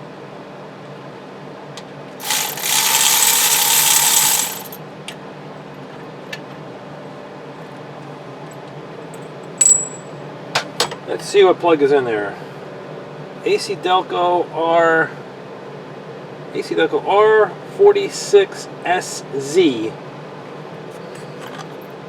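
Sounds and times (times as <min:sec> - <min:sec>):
fast ratcheting: 0:02.2 - 0:04.8
sharp metallic clicks: 0:02.2 - 0:04.8
short ringing metal clink: 0:09.6 - 0:10.1.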